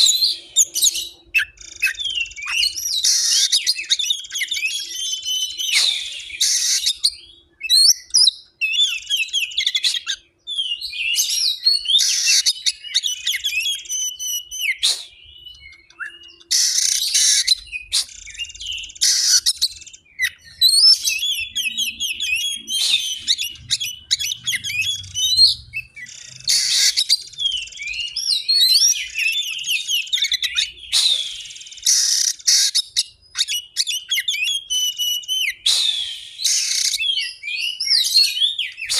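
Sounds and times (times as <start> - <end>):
bird chirps trills and whistles: 0.0 - 38.9
harsh rasping bird notes: 20.9 - 27.6.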